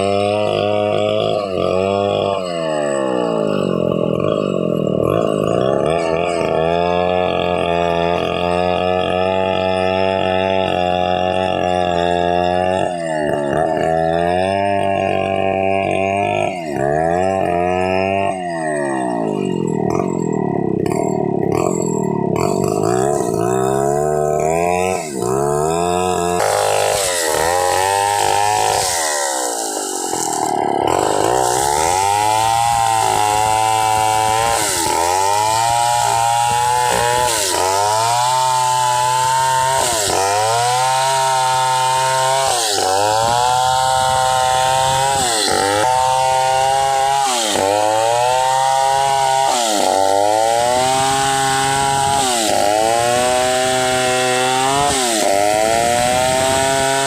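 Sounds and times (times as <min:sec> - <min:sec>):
chainsaw sawing through wood: 0:00.0 - 0:57.0.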